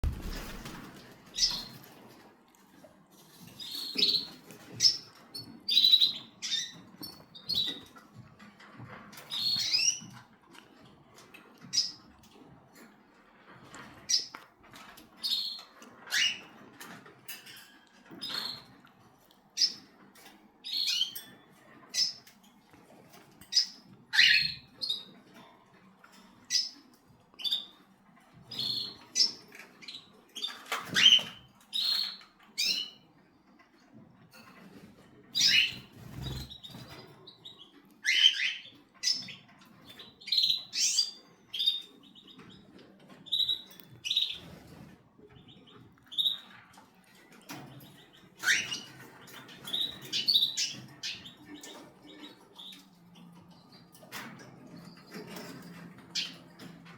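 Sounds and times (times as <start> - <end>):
cockatiel chirping: 48.4 - 48.9.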